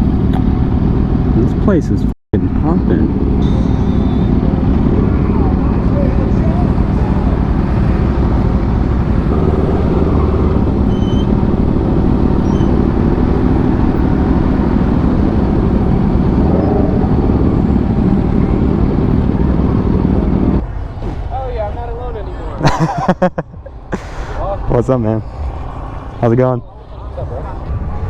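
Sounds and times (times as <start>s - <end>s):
motorcycle engine running: 2.4s - 21.4s
wind rush on microphone: 23.5s - 28.0s.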